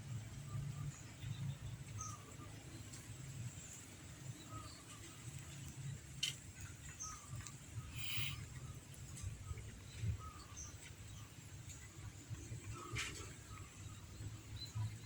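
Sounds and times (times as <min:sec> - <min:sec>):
faint bird chirps: 0:06.6 - 0:15.0.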